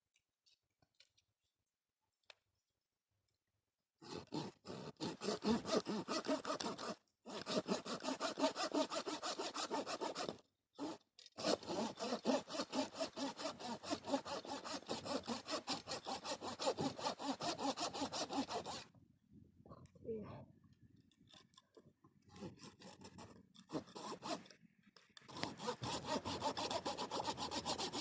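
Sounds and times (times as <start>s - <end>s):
hand saw cutting wood: 4.0s - 18.9s, 22.3s - 24.6s, 25.2s - 28.0s.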